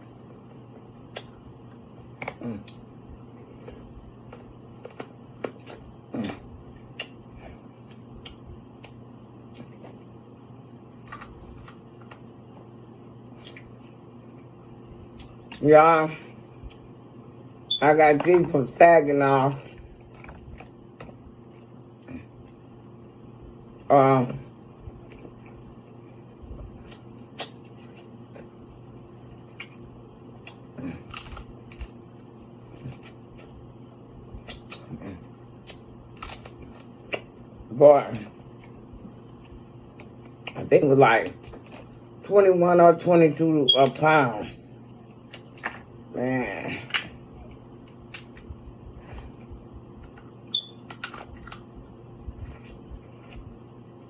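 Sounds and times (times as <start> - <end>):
steady low hum: 0.0 - 54.0
seafood being shelled and chewed: 10.9 - 14.1, 19.7 - 22.6, 25.0 - 37.6, 41.2 - 42.1, 49.8 - 51.8.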